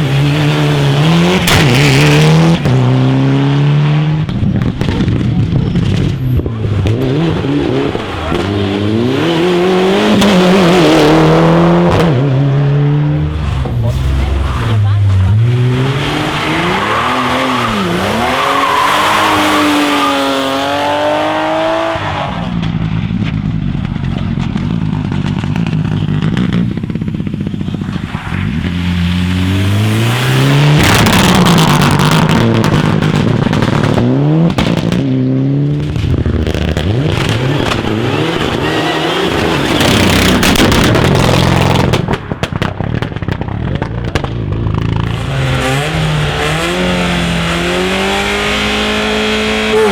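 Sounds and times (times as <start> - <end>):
rally car engines revving: 0.0 - 49.9
tyres on gravel: 22.0 - 34.9, 35.7 - 48.8.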